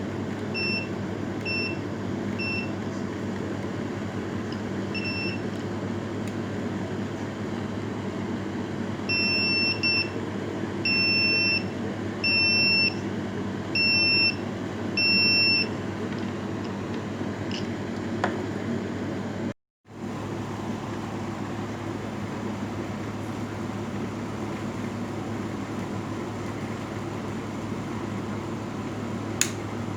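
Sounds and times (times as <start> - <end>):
fire alarm beeps: 0.6 - 1.8, 2.4 - 2.7, 4.9 - 5.4, 9.1 - 10.2, 10.8 - 13.0, 13.8 - 14.4, 15.0 - 15.8.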